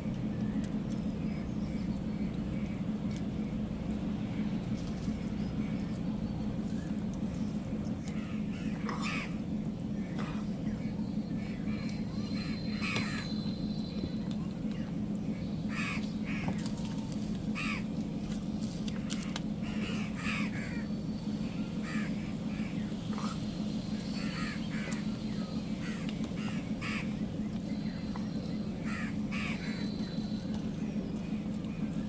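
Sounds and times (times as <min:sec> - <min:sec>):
steady low hum: 0:00.0 - 0:32.0
crows cawing: 0:08.0 - 0:09.4, 0:11.4 - 0:13.3, 0:15.7 - 0:16.6, 0:17.6 - 0:17.9, 0:19.2 - 0:20.9, 0:21.7 - 0:23.4, 0:24.2 - 0:25.1, 0:25.8 - 0:27.2, 0:28.8 - 0:29.9.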